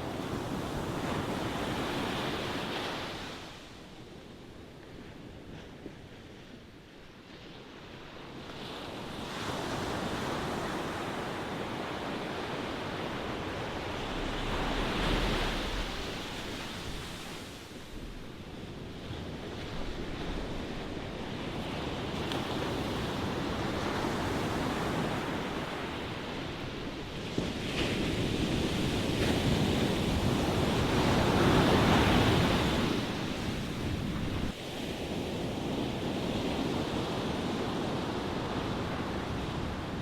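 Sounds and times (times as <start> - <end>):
ocean waves breaking: 8.5 - 26.3.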